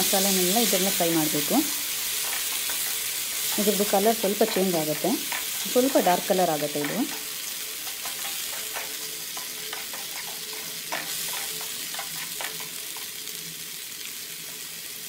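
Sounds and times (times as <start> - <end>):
paste sizzling in oil: 0.0 - 15.0
spatula scraping and tapping: 2.0 - 13.3.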